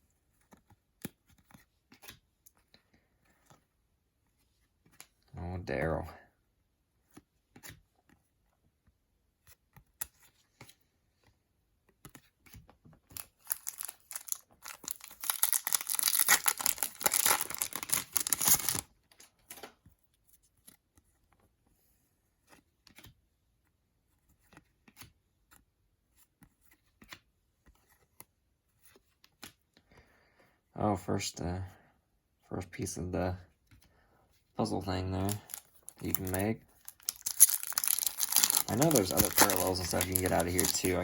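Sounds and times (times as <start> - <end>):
wrapper tearing and crinkling: 13.1 - 18.8, 35.2 - 41.0.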